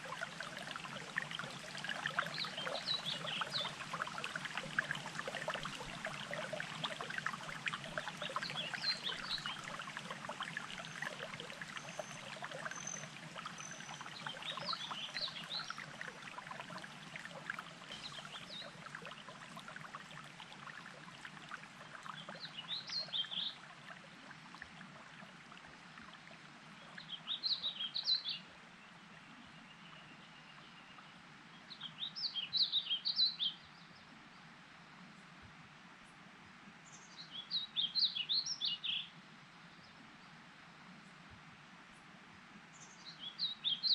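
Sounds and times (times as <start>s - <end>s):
songbird chirping: 0.0s - 24.4s
water trickling and burbling: 0.0s - 28.4s.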